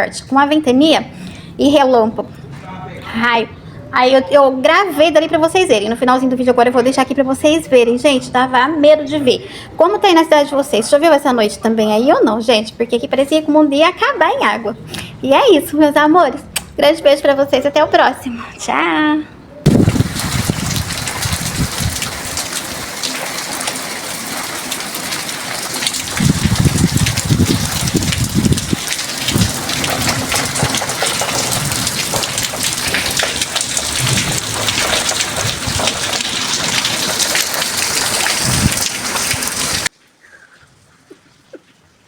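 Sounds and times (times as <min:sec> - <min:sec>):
heavy rain pouring: 0:19.7 - 0:39.9
thunder rumbles: 0:19.7 - 0:39.9.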